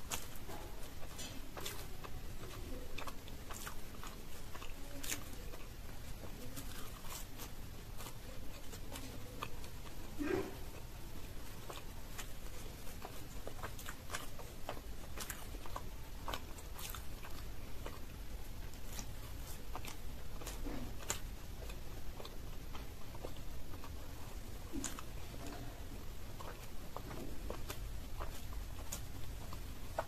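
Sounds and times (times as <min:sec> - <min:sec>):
chewing soft food: 0:00.0 - 0:30.0
low steady hum: 0:00.0 - 0:30.0.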